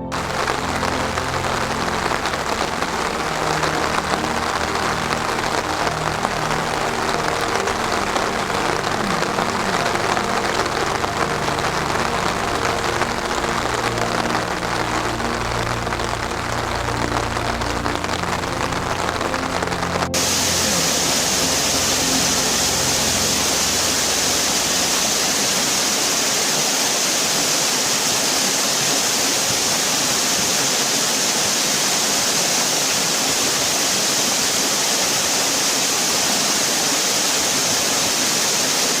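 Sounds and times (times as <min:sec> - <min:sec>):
music: 0:00.0 - 0:26.8
rushing water: 0:00.0 - 0:39.0.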